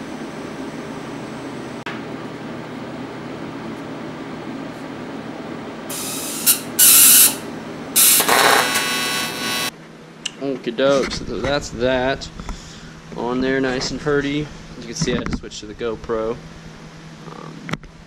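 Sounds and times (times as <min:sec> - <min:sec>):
machine hum: 0:00.0 - 0:18.0
hissing buzzing welding arc: 0:05.9 - 0:09.7.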